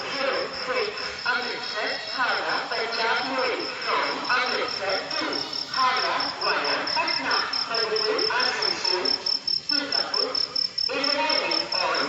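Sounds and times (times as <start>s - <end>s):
crowd talking: 0.0s - 12.0s
rapid high-pitched chirping: 2.9s - 12.0s.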